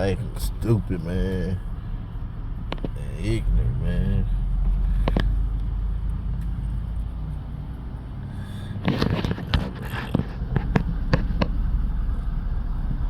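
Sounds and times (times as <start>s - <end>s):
car engine rumble: 0.0s - 13.0s
scraping and crackling with knocks: 2.6s - 3.0s, 8.4s - 11.6s.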